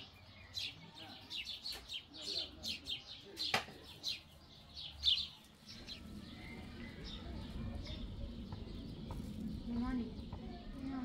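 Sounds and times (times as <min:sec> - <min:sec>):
small birds chirping: 0:00.0 - 0:11.0
low background rumble: 0:05.7 - 0:11.0.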